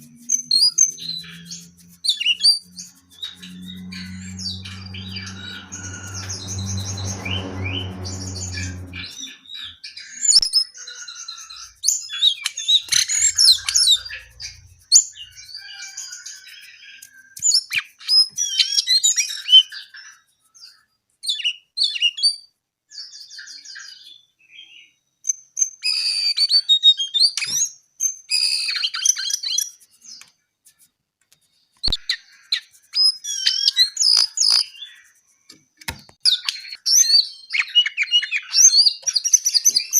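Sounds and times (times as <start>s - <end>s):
low steady hum: 0.0s - 9.7s
songbird chirps and trills: 0.0s - 39.9s.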